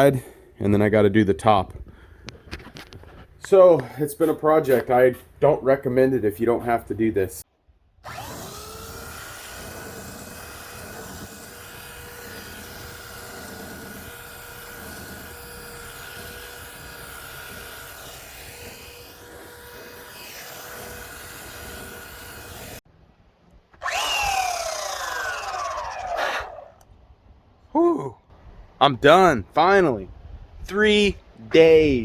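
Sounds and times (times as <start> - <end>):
motor whine spinning down: 8.0 - 16.6, 23.8 - 26.9
belt sander whining: 8.0 - 22.8, 23.8 - 26.9.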